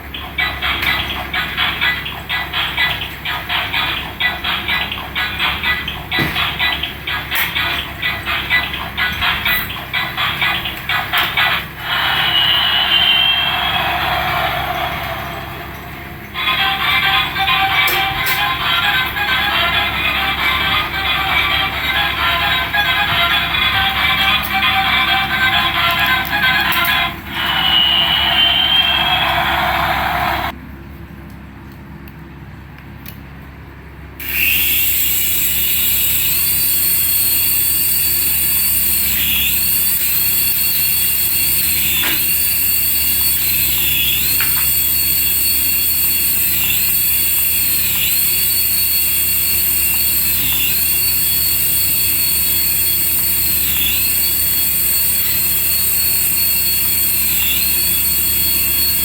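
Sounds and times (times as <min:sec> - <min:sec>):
electronic jet-engine sound effect: 0:11.8 - 0:16.1, 0:27.3 - 0:30.6.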